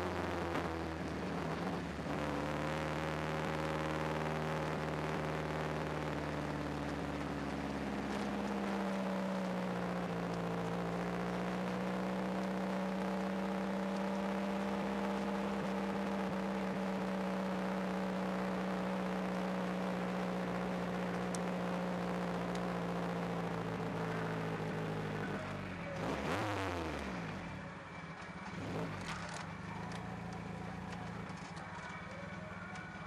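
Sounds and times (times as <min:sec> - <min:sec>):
race car engine running: 0:00.0 - 0:33.0.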